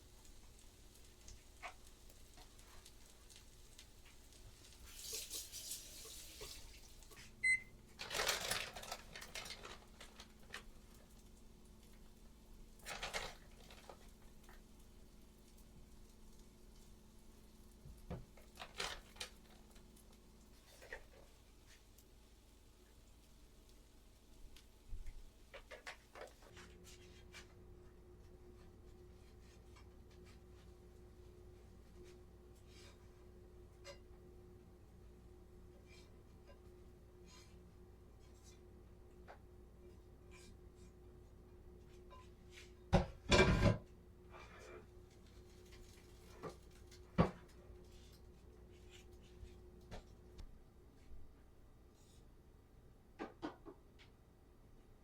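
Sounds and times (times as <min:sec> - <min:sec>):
rustling of kitchen handling: 0:04.0 - 0:11.0, 0:12.8 - 0:14.6, 0:18.0 - 0:20.0
appliance electronic beep: 0:07.4 - 0:07.7.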